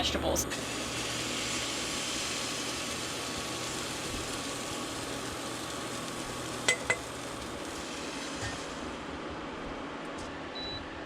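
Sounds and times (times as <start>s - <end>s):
food sizzling in a pan: 0.5s - 9.2s.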